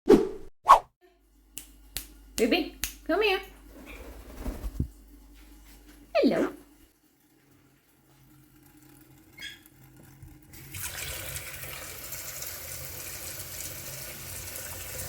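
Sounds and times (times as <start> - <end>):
water running from a tap: 7.2 - 15.0.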